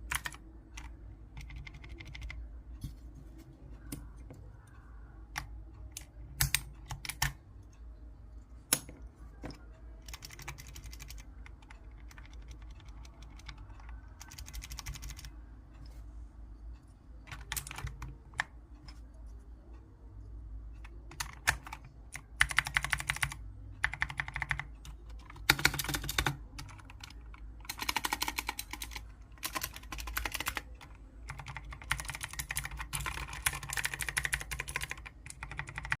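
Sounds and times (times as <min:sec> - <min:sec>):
mechanical keyboard typing: 0:00.0 - 0:02.5, 0:03.8 - 0:07.4, 0:08.7 - 0:15.4, 0:17.2 - 0:19.1, 0:20.7 - 0:36.0.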